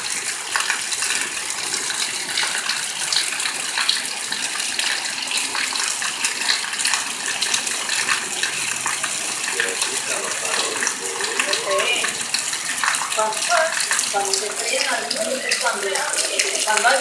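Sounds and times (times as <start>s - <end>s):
heavy rain falling: 5.5s - 17.0s.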